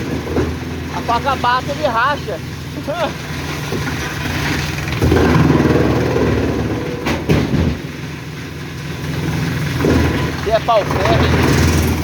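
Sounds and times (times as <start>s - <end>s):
wood chipper chewing a log: 0.0s - 7.1s, 8.4s - 12.0s.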